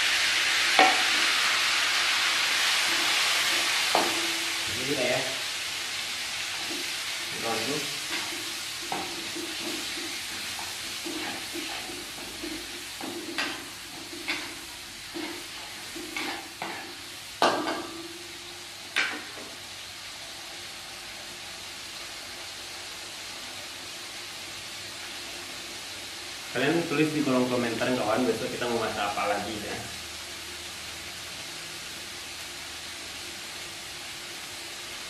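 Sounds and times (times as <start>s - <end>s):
chilies sizzling in oil: 0.0s - 35.0s
metal clanking on wok: 3.9s - 5.1s, 6.6s - 18.3s, 19.0s - 19.5s
metal spatula scraping a wok: 6.5s - 17.1s.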